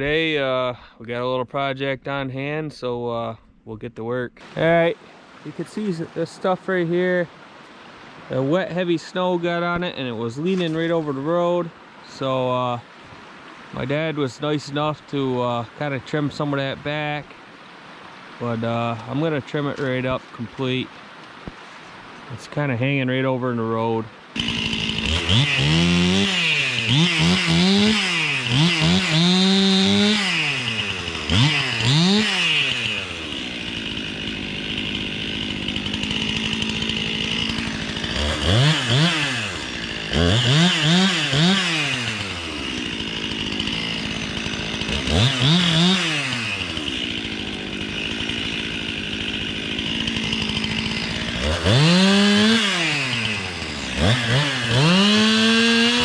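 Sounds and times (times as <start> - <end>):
chainsaw revving and idling: 24.3 - 56.0.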